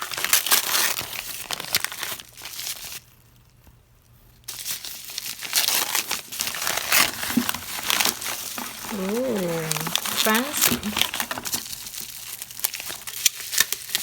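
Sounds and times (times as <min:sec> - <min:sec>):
packaging crinkling: 0:00.0 - 0:03.0, 0:04.5 - 0:14.0.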